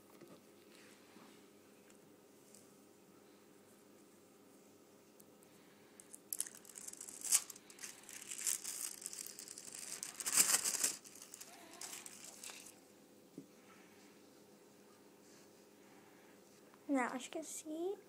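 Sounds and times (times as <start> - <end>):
packaging crinkling and tearing: 6.1 - 12.8.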